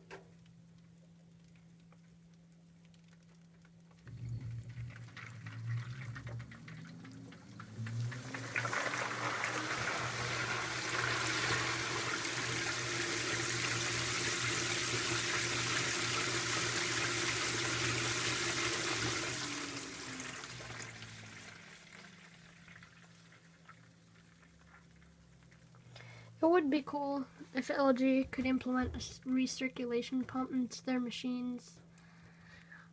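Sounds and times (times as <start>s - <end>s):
water rushing into washing machine: 4.0s - 24.4s.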